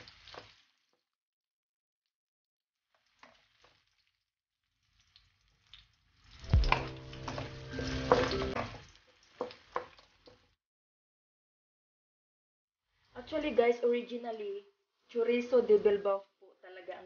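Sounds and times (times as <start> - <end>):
sausage sizzling in oil: 0.0 - 1.0, 4.7 - 10.6
wooden spatula scraping wok: 6.4 - 10.0.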